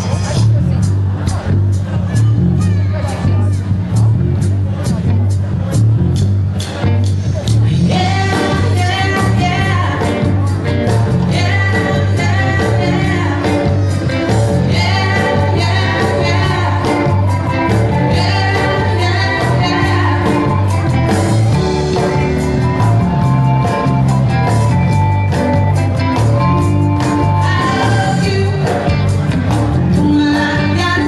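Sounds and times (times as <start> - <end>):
band playing bass and drums: 0.0 - 31.0
lead vocal singing: 11.2 - 22.2, 27.3 - 29.1.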